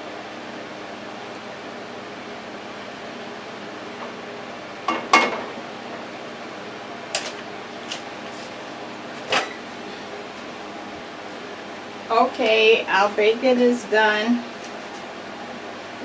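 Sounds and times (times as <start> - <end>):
fan-like hum: 0.0 - 16.0
dishes clattering: 4.9 - 5.5.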